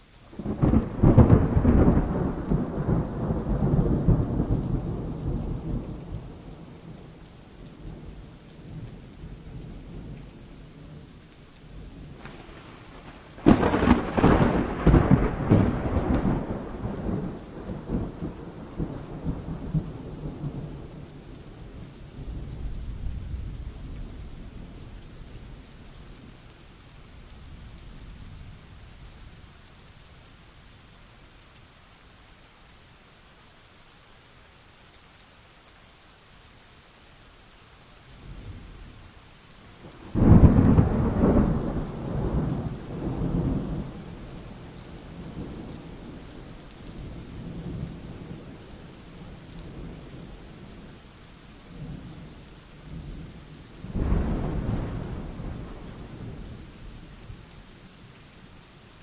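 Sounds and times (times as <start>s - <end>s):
steady rain: 0.0s - 59.0s
rolling thunder: 0.4s - 6.9s, 12.0s - 24.8s, 39.8s - 48.6s, 52.9s - 56.7s.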